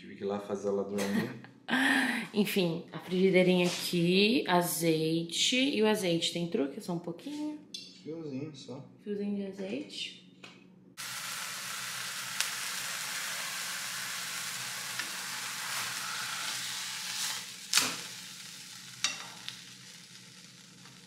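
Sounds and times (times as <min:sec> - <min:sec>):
meat sizzling in a frying pan: 0:11.0 - 0:21.0
spoon clacking against pan: 0:19.0 - 0:19.5.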